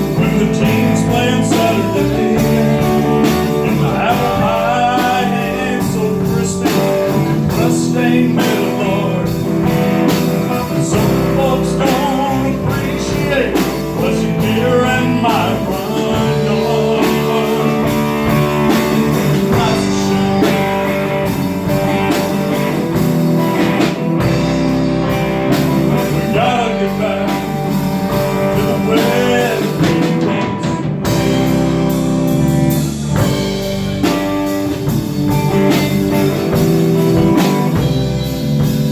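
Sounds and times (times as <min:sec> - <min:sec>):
person singing: 0:00.0 - 0:23.1, 0:23.8 - 0:31.7
bass guitar: 0:00.0 - 0:38.9
drum kit: 0:00.0 - 0:38.9
electric guitar: 0:00.0 - 0:38.9.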